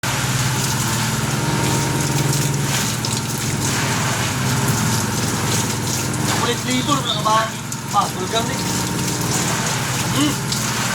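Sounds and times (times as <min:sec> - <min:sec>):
machine humming with flutter: 0:00.0 - 0:10.9.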